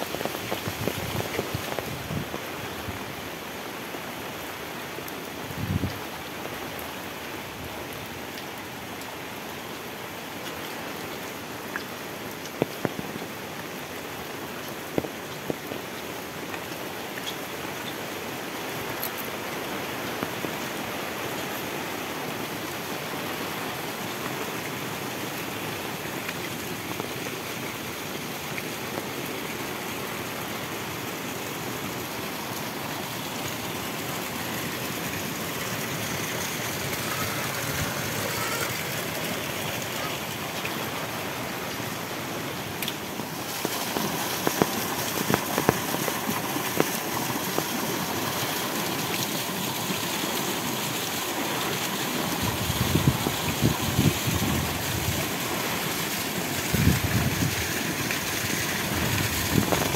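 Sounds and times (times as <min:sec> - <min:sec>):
heavy rain hissing: 0:00.0 - 0:59.9
raindrops ticking close by: 0:00.0 - 0:59.9.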